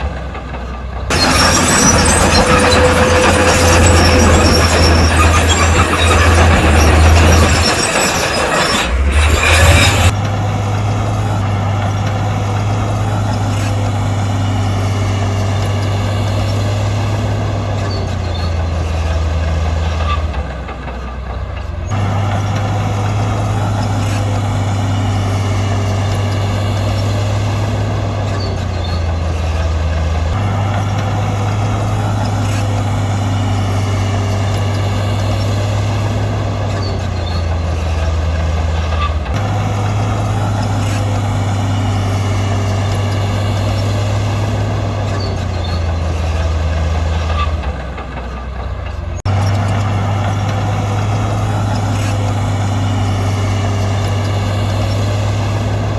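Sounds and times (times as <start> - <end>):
heavy diesel engine under load: 0.0 - 55.9.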